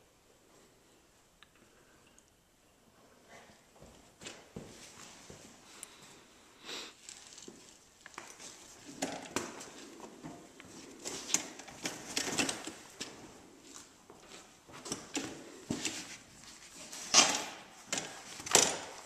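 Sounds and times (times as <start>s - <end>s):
rustling: 6.9s - 19.0s.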